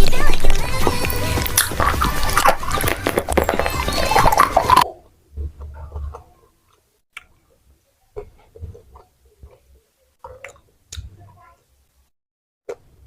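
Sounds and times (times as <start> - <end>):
person chewing: 0.0 - 4.9, 8.2 - 11.0.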